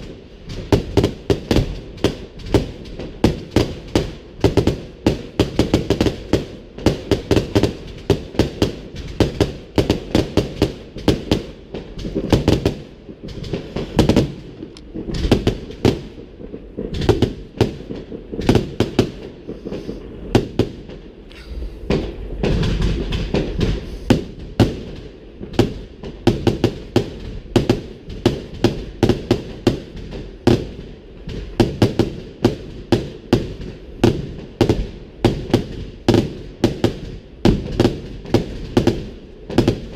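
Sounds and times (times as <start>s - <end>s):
fireworks bangs and crackles: 0.0s - 39.9s
deep rumbling: 21.2s - 23.1s.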